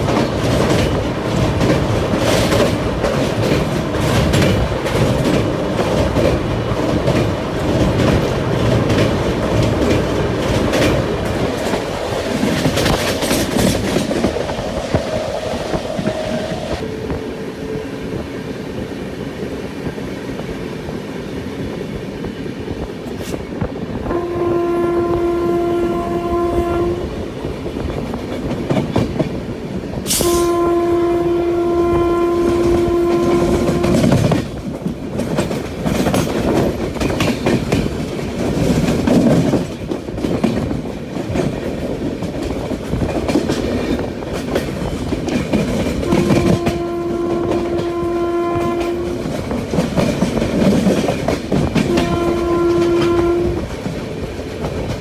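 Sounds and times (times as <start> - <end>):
train wheels clacking on rails: 0.0 - 55.0
train horn blasts: 14.9 - 18.3, 24.0 - 27.2, 30.1 - 34.5, 46.0 - 49.8, 51.7 - 53.9.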